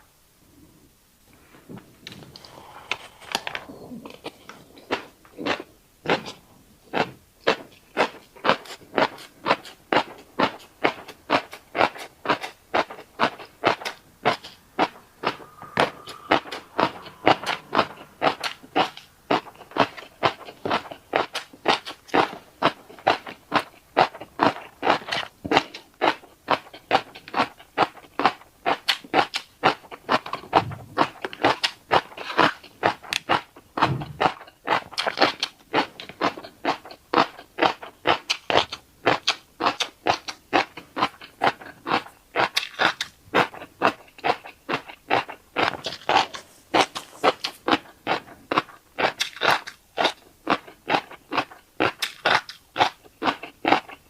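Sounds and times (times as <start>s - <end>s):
wet chewing crunches: 2.3s - 54.0s.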